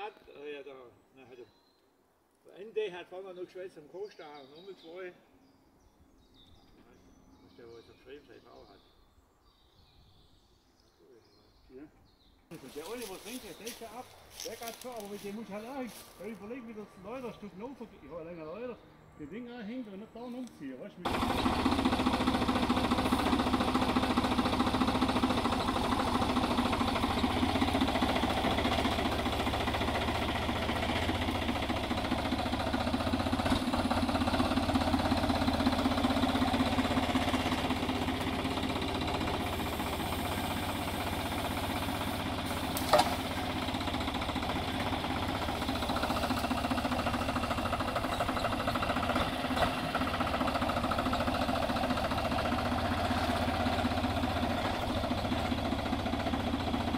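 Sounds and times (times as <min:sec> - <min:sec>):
engine running steadily: 0:21.0 - 0:56.9.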